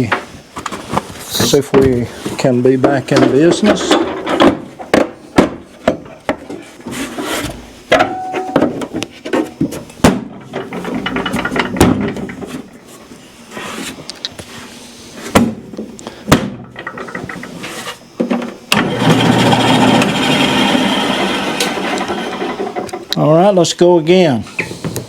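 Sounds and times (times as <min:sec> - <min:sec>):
bandsaw running: 0:18.8 - 0:23.1.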